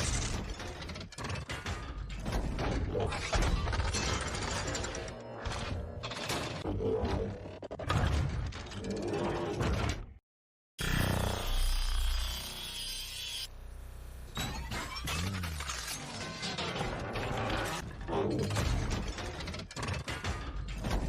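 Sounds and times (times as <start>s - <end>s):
whirring gears: 0.0s - 10.0s, 14.1s - 21.0s
music: 16.9s - 21.0s.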